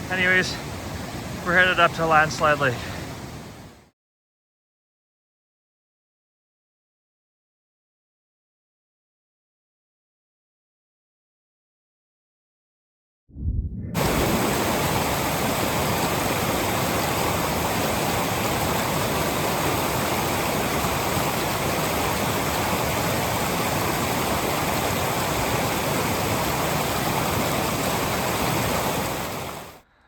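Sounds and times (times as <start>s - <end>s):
rushing water roar: 0.0s - 3.8s, 14.0s - 29.8s.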